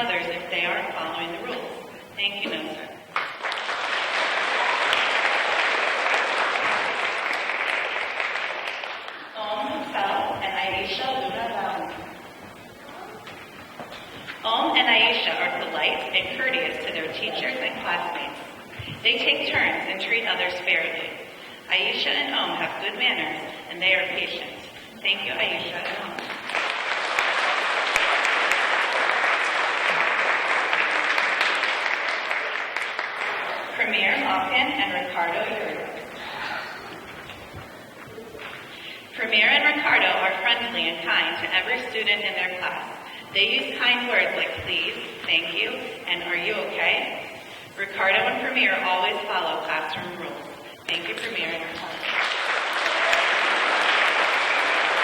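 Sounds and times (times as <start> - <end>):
audience applauding in a hall: 3.1 - 9.4, 26.2 - 33.8, 51.9 - 55.0.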